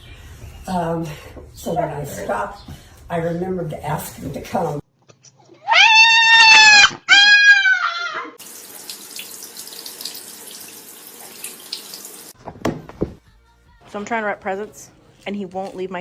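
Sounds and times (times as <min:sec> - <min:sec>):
animal calling loudly: 0:05.6 - 0:08.4
water running from a tap: 0:08.4 - 0:12.4.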